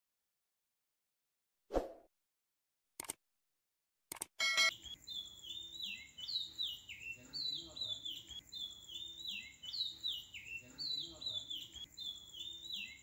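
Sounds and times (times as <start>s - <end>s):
click: 4.1s - 4.3s.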